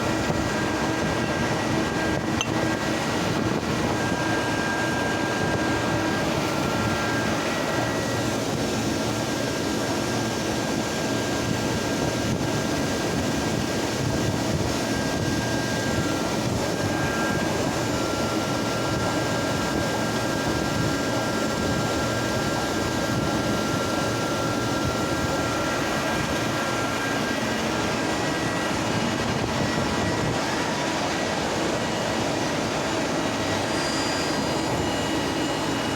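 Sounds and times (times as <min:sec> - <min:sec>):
grinding machine humming: 0:00.0 - 0:11.5.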